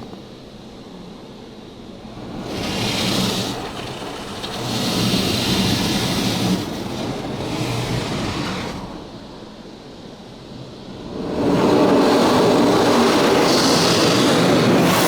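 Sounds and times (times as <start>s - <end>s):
water jets spraying on car: 2.2s - 9.0s.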